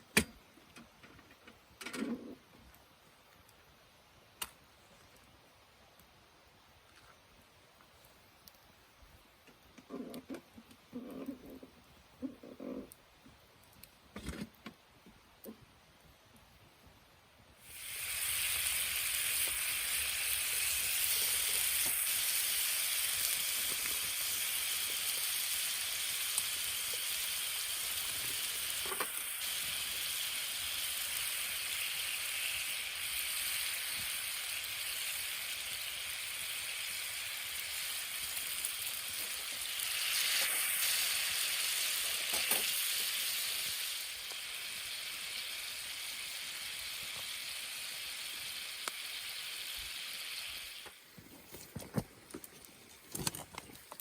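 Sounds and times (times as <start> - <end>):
food sizzling in a pan: 17.6 - 51.2.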